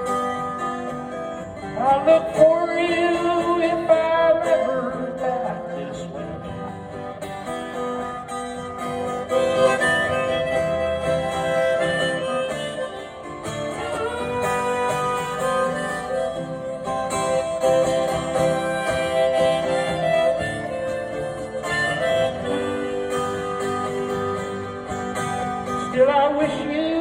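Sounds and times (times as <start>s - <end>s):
acoustic guitar strumming: 0.0s - 27.0s
harmonica playing held notes: 6.4s - 26.0s.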